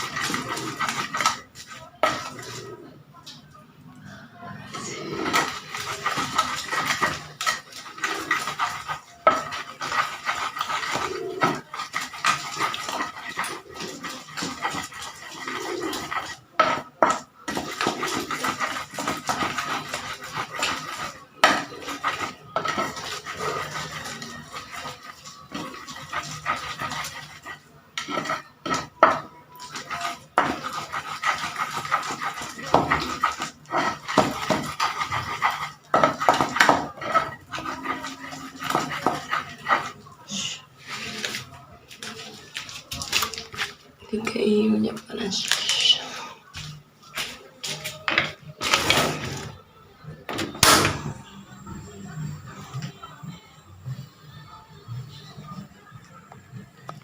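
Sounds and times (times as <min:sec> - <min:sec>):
utensils and dishes clattering: 0:00.0 - 0:03.5, 0:04.6 - 0:52.9.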